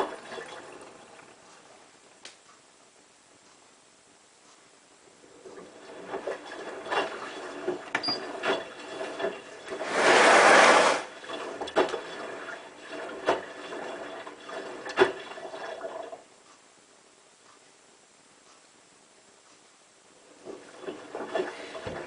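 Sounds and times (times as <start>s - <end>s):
washing machine water rushing: 0.0s - 1.4s, 5.3s - 16.2s, 20.2s - 22.0s.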